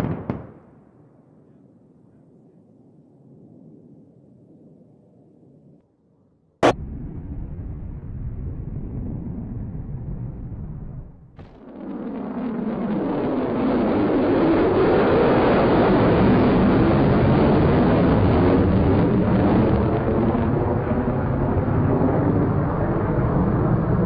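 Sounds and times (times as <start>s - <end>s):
jet engines roaring: 7.9s - 24.0s.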